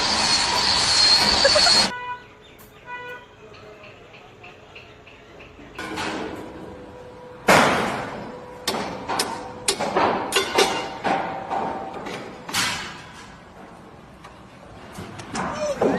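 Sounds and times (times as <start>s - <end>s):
loud ringing knocks: 7.4s - 13.0s.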